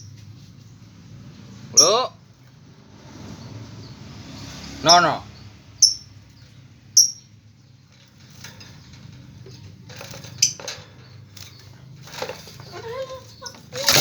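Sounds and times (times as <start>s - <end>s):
bird chirping: 5.4s - 7.8s.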